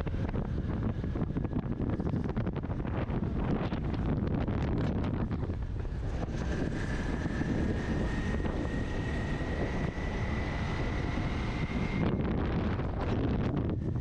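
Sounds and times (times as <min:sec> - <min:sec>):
wind buffeting microphone: 0:00.0 - 0:14.0
faint thin whine rising in pitch: 0:05.6 - 0:13.9.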